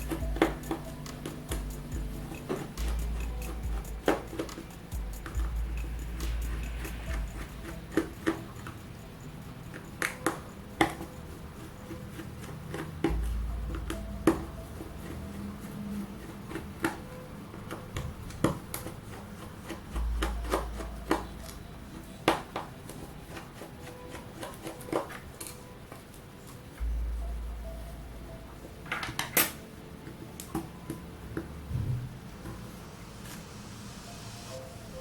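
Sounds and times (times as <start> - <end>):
tools tapping phone parts: 0.0 - 9.0, 9.6 - 25.6.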